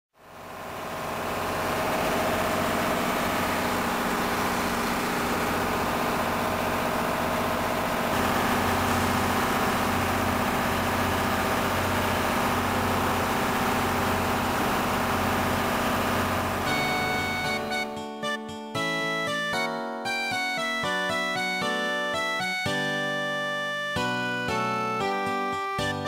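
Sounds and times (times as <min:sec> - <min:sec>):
train idling drone: 0:00.2 - 0:17.9.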